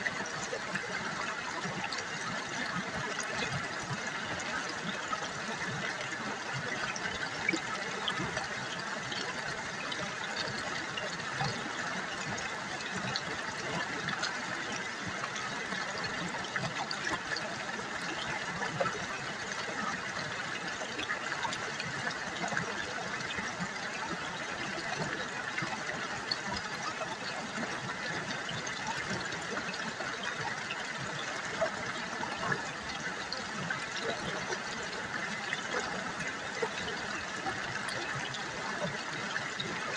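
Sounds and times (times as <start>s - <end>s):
river babbling over stones: 0.0s - 39.9s.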